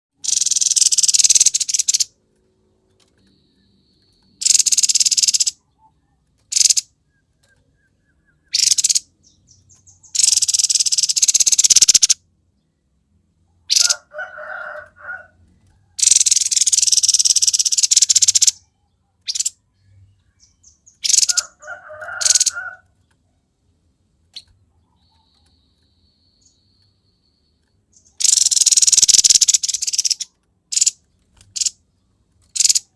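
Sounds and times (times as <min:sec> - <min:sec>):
bird chattering notes: 0:00.2 - 0:02.1, 0:04.3 - 0:12.2, 0:13.7 - 0:14.1, 0:16.0 - 0:18.6, 0:20.4 - 0:22.8, 0:27.9 - 0:31.8, 0:32.5 - 0:32.9
bird singing harsh high bursts: 0:00.2 - 0:02.1, 0:04.4 - 0:05.6, 0:08.4 - 0:12.2, 0:13.7 - 0:14.0, 0:16.0 - 0:18.6, 0:20.4 - 0:22.8, 0:28.0 - 0:31.0.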